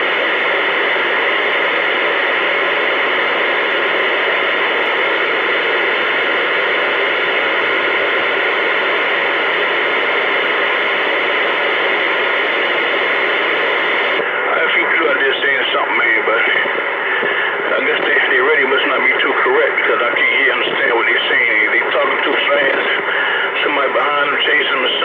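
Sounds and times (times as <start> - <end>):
radio static hiss: 0.0 - 25.0.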